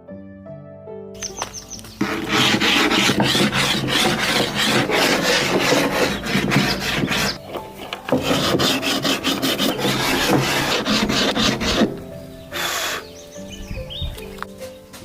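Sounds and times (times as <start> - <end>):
wood being sanded by hand: 2.0 - 13.1.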